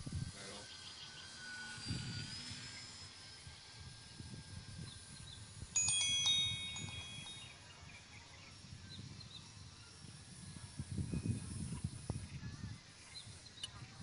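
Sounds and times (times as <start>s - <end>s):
bell-like ringing tones: 1.0s - 4.6s, 5.5s - 8.6s.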